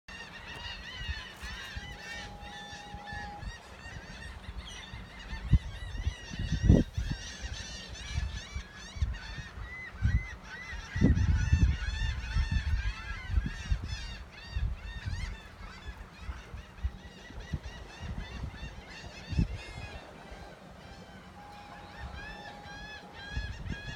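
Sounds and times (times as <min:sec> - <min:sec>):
seagulls calling: 0:00.1 - 0:23.9.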